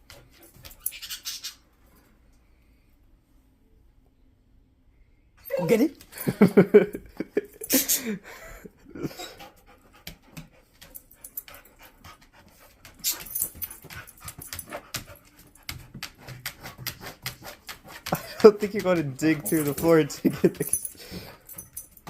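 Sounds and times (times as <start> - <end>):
dog panting: 9.0 - 21.8.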